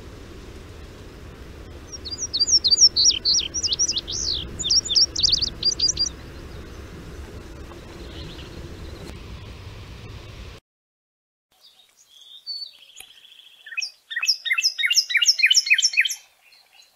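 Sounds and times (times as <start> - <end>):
bird singing high sweet notes: 1.9 - 6.9, 7.8 - 9.1, 11.6 - 16.9.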